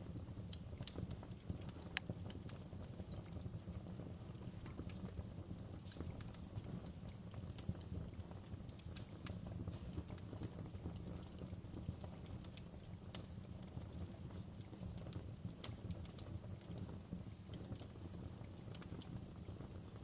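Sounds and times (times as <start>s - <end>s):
low rumble of flame: 0.0s - 20.0s
wood fire crackling: 0.0s - 20.0s.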